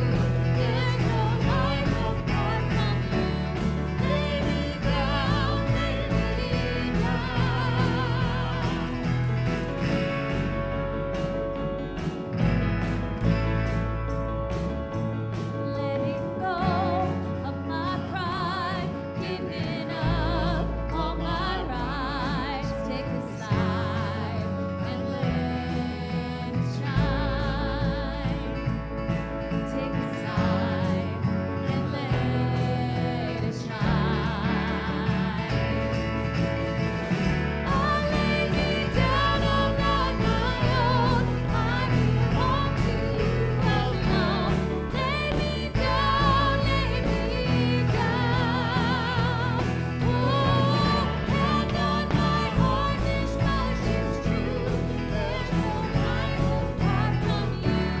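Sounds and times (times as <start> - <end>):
voices singing with vibrato: 0.0 - 10.2, 29.9 - 58.0
instrumental accompaniment: 0.0 - 58.0.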